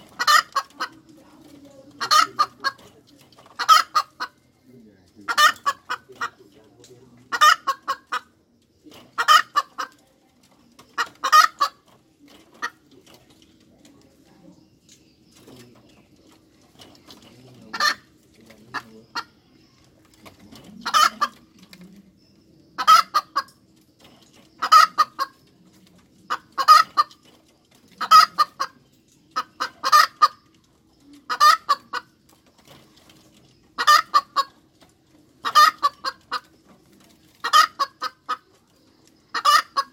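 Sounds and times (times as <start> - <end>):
hen cackling: 0.0 - 1.2, 1.9 - 4.4, 5.2 - 6.5, 7.3 - 8.4, 9.0 - 10.0, 10.8 - 11.9, 17.7 - 19.4, 20.7 - 21.6, 22.8 - 23.6, 24.6 - 25.5, 26.3 - 27.2, 27.9 - 30.5, 31.2 - 32.1, 33.8 - 34.6, 35.4 - 36.6, 37.4 - 38.5, 39.3 - 39.9.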